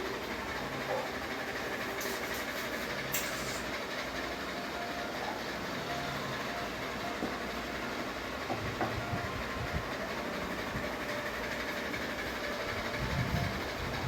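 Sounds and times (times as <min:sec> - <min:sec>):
ceiling fan whirring: 0:00.0 - 0:14.0.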